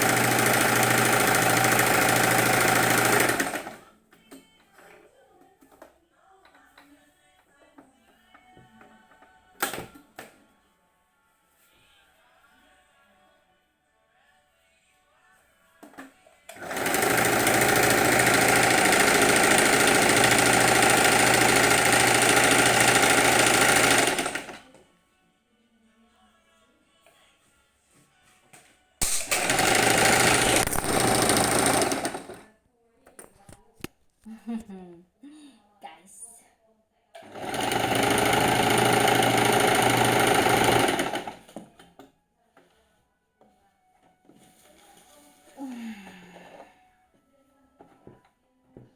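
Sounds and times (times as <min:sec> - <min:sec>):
electric sewing machine running: 0:00.0 - 0:03.8, 0:16.6 - 0:24.6, 0:29.1 - 0:32.4, 0:37.2 - 0:41.7.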